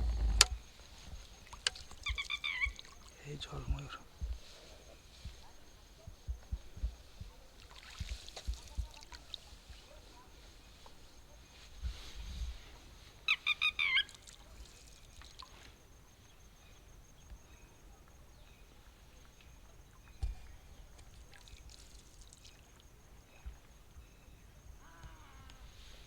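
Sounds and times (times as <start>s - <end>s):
sharp bird calls: 2.0s - 3.4s, 13.3s - 14.2s.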